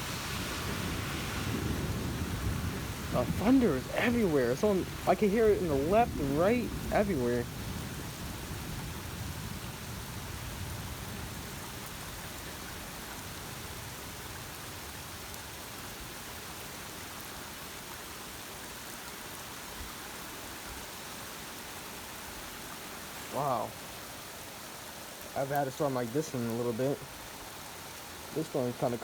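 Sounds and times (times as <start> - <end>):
low rumble of thunder: 0.0 - 12.9
heavy rain falling: 0.0 - 29.0.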